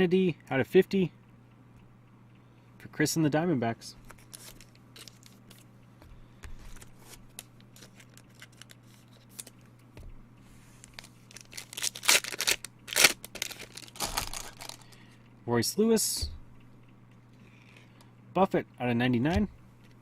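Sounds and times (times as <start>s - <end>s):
low steady hum: 0.0s - 20.0s
cards clicking and rustling: 4.0s - 10.1s, 10.8s - 15.0s
wrapper tearing and crinkling: 7.4s - 9.6s, 10.8s - 14.9s.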